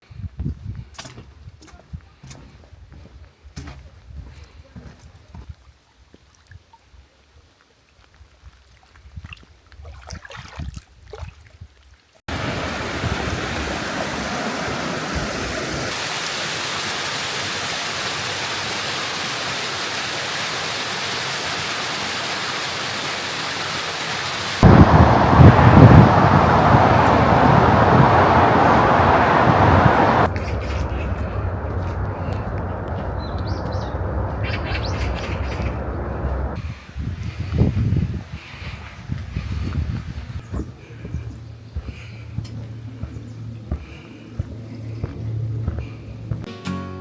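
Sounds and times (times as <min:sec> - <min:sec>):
thunder rumble: 0:12.3 - 0:15.9, 0:24.6 - 0:36.6
steady rain hiss: 0:12.3 - 0:37.0.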